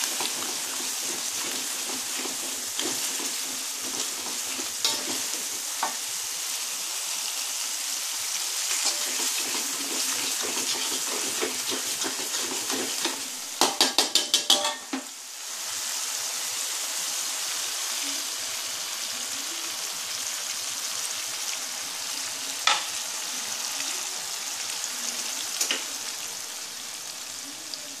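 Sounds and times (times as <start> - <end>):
fish sizzling in a pan: 0.0 - 28.0
spatula knocking on a pan: 0.2 - 6.0, 10.4 - 15.1.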